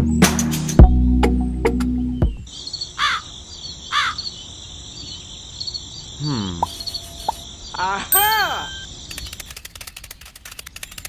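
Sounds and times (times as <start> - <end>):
background music: 0.0 - 2.4
high insect buzz: 2.6 - 7.8
bird cawing: 2.8 - 4.4.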